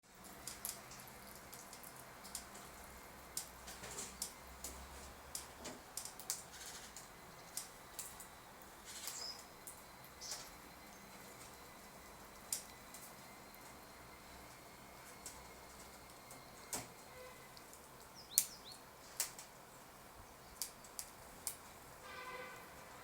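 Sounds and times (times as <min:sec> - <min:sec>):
squirrel clicks and rustles: 0:00.2 - 0:11.7, 0:20.6 - 0:21.7.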